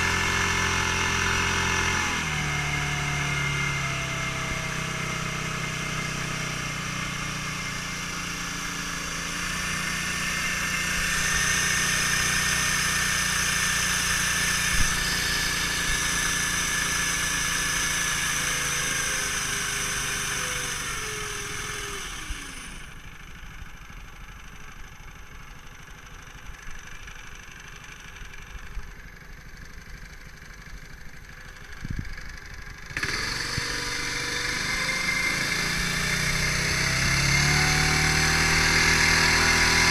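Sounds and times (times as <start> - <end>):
outboard motor drone: 0.0 - 23.3, 31.4 - 39.9.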